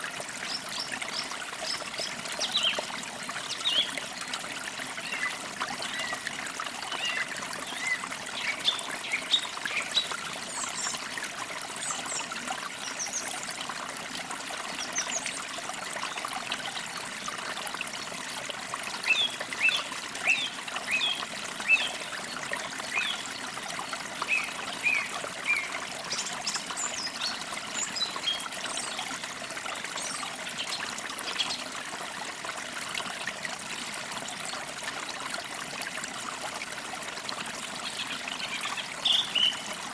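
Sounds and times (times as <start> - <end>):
small stream trickling: 0.0 - 39.9
birds chirping and twittering: 6.9 - 11.0, 24.2 - 29.0, 37.8 - 39.7.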